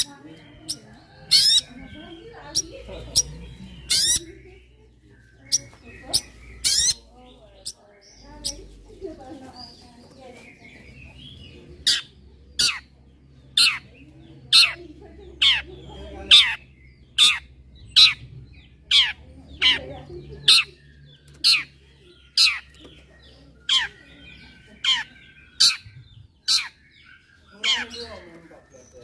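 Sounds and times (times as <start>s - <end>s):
bird sharp downward calls: 2.5s - 4.4s, 5.4s - 7.0s.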